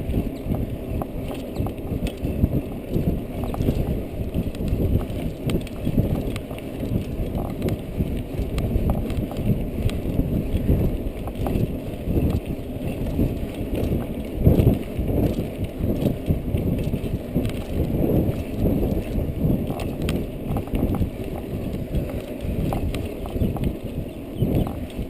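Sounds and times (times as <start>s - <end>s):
wind and ground rumble: 0.0s - 25.0s.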